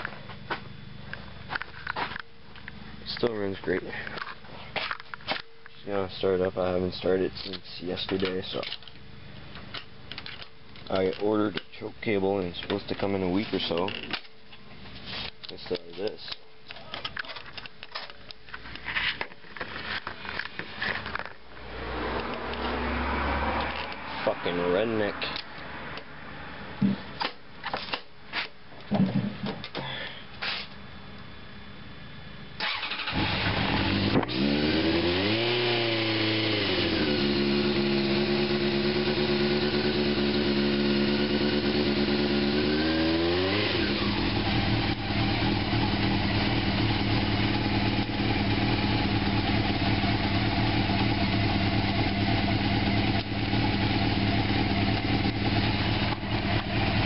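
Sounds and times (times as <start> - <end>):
motorcycle engine starting and revving: 20.9 - 24.2, 32.6 - 57.0.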